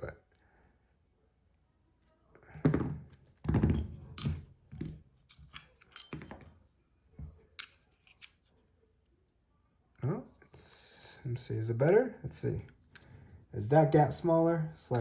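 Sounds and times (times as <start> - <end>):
pliers clicking and scraping on metal: 3.8 - 6.5, 7.6 - 8.4.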